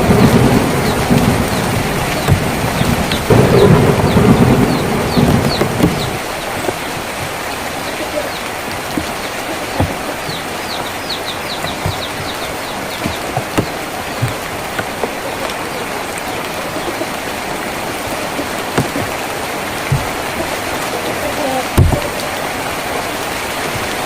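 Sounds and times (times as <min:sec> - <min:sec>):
rain drumming on a tin roof: 0:00.0 - 0:24.0
heavier drops knocking: 0:00.1 - 0:07.8, 0:08.8 - 0:15.3, 0:18.6 - 0:20.6, 0:21.8 - 0:22.3.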